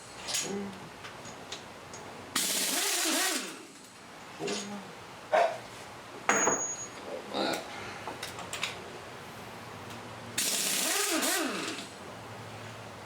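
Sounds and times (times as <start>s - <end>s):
pneumatic impact gun: 2.4s - 3.8s, 10.4s - 11.9s
metallic clinks and knocks: 6.3s - 7.0s.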